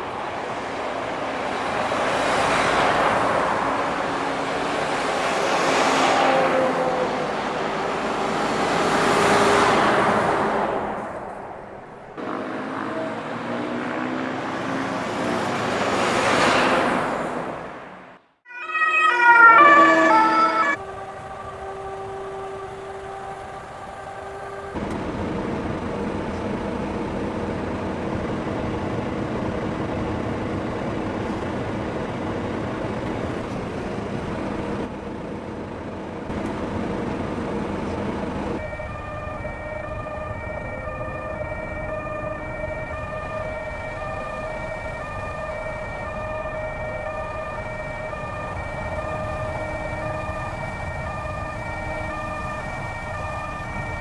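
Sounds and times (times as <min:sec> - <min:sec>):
vehicle road noise: 0:00.0 - 0:54.0
two-tone emergency siren: 0:01.4 - 0:10.1, 0:12.2 - 0:13.8, 0:18.4 - 0:25.8, 0:38.5 - 0:54.0.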